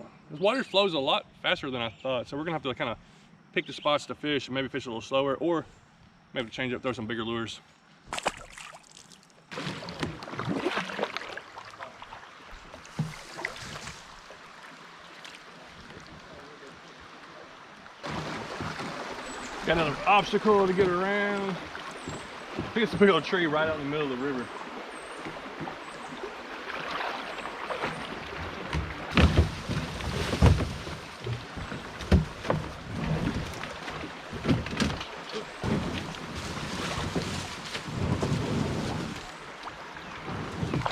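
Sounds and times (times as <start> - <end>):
wind: 0.0 - 40.9
paddle splashes: 8.1 - 40.9
running river water: 8.1 - 40.9
knocks on kayak hull: 28.4 - 36.2.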